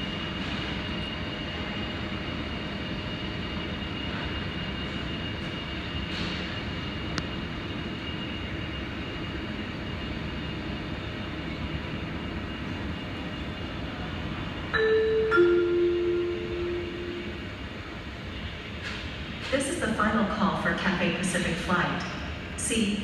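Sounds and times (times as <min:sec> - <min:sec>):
terminal background rumble: 0:00.0 - 0:23.0
two-note descending pa chime: 0:14.8 - 0:17.4.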